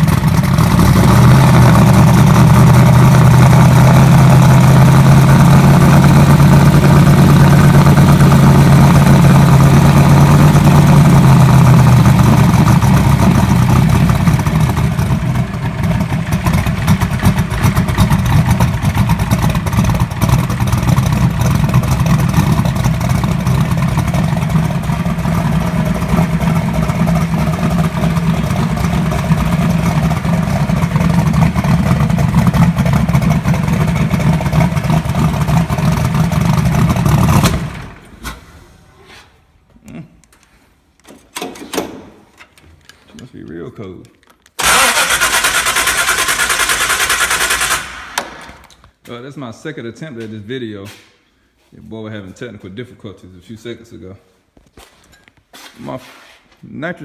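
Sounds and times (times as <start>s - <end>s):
car engine running rough: 0.0s - 38.2s, 44.6s - 48.7s.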